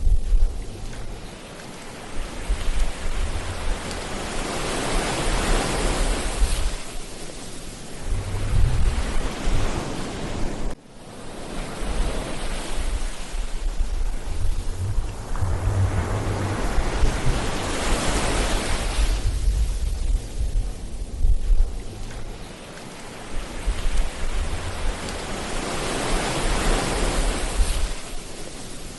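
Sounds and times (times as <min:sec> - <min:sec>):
wind buffeting on microphone: 0:00.0 - 0:10.8, 0:11.6 - 0:28.9
ocean surf washing on beach: 0:00.0 - 0:28.9.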